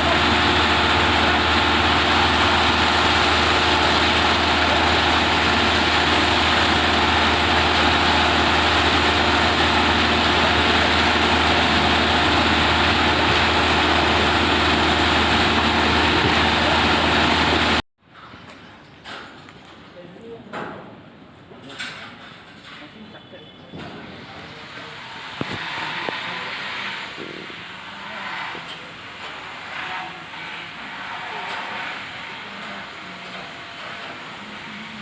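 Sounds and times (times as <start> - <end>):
construction machinery engine drone: 0.0 - 17.8, 24.0 - 35.0.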